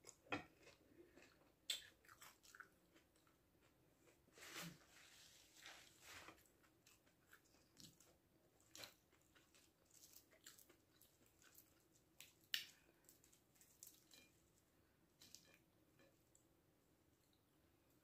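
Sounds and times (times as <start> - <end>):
crunchy chewing: 0.0 - 4.2, 5.9 - 14.5
fried food crackling as broken: 8.7 - 14.3.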